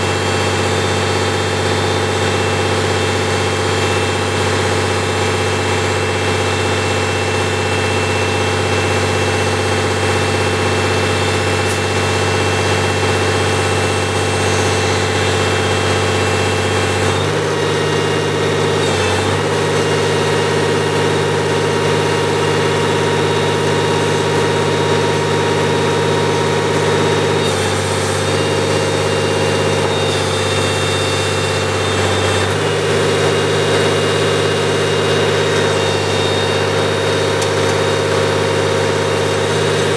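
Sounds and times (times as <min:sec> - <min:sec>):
diesel engine running near idle: 0:00.0 - 0:39.9.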